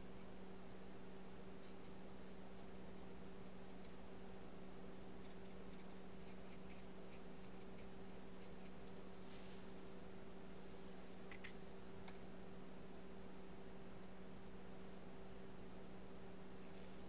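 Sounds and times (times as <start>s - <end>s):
paintbrush stroke: 4.6s - 12.0s, 16.6s - 17.0s.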